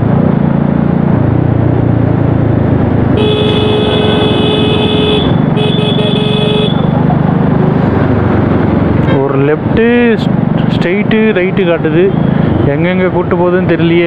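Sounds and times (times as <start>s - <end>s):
road and wind noise: 0.0s - 14.0s
vehicle horn honking: 3.2s - 6.9s.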